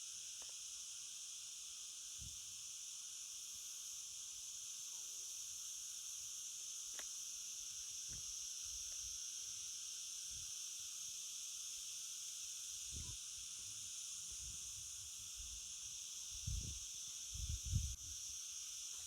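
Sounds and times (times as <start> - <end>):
insects chirping: 0.0 - 19.0
wind bumps on microphone: 16.4 - 16.8, 17.4 - 18.0.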